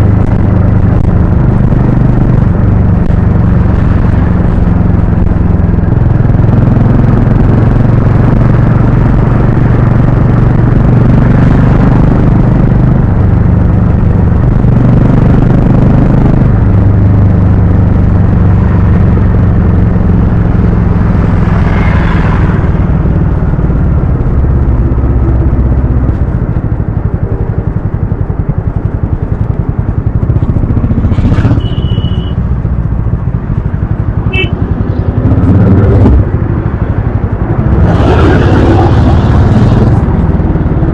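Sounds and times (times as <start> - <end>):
motorcycle engine and exhaust: 0.0 - 40.9.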